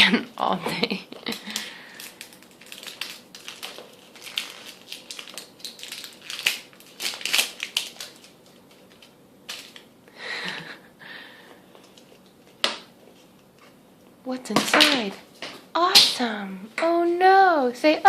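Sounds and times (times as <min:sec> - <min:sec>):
wrapper crinkling and tearing: 0:01.2 - 0:09.9.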